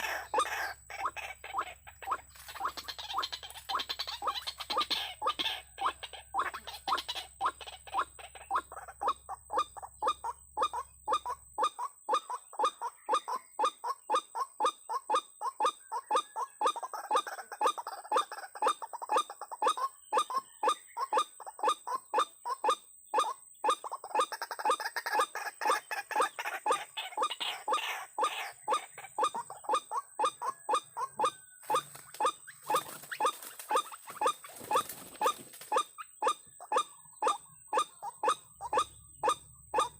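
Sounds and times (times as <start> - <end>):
waterhen calling: 0.0 - 13.4, 23.7 - 39.9.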